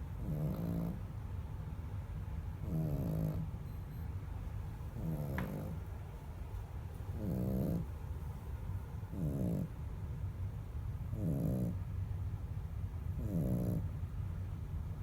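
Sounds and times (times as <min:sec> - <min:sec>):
dog snoring: 0:00.2 - 0:01.1, 0:02.6 - 0:03.5, 0:05.0 - 0:05.8, 0:07.1 - 0:07.9, 0:09.1 - 0:09.8, 0:11.1 - 0:11.8, 0:13.1 - 0:14.0.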